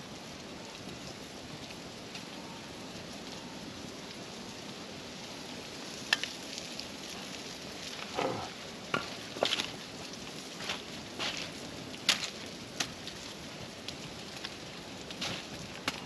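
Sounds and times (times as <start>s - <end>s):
food sizzling in hot oil: 5.2s - 15.9s.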